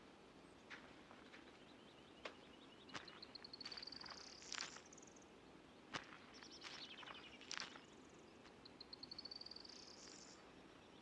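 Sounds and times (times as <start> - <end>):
small birds chirping: 0.5 - 11.0.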